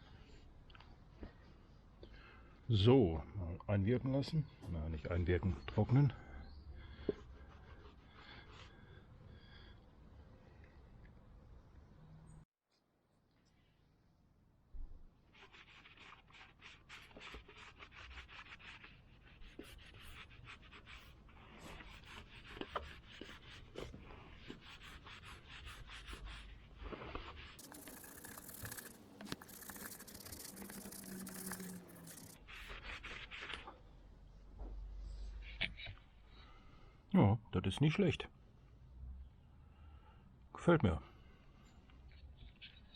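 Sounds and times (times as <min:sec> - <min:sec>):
cloth rubbing metal: 0:27.4 - 0:32.6.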